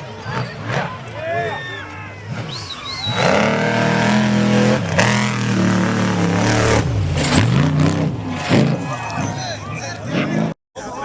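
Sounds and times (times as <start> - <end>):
truck engine accelerating past: 2.1 - 10.6.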